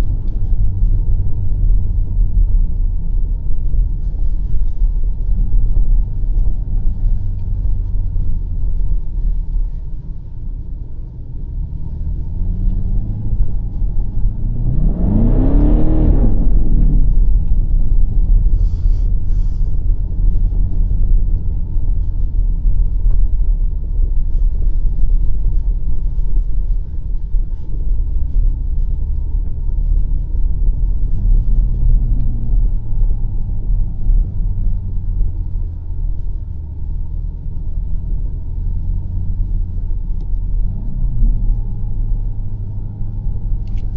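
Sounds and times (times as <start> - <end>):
road noise: 0.0 - 43.9
car engine revving: 11.7 - 21.5.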